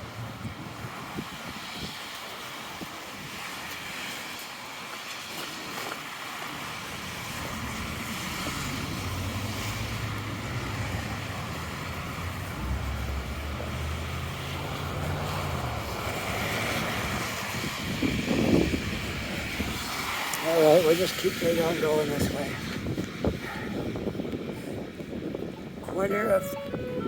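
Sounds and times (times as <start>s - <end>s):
city traffic: 0.0s - 27.0s
vehicle engine passing: 6.9s - 22.6s.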